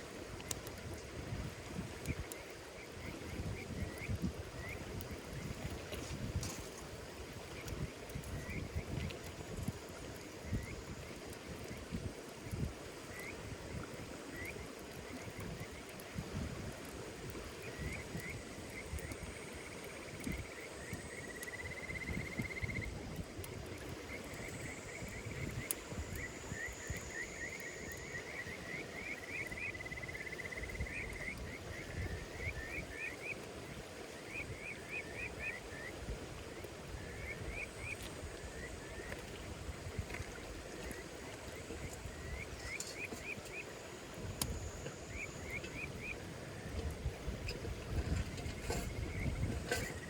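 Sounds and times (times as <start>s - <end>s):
campfire crackling: 0.0s - 50.0s
insects chirping: 1.5s - 16.4s, 17.0s - 50.0s.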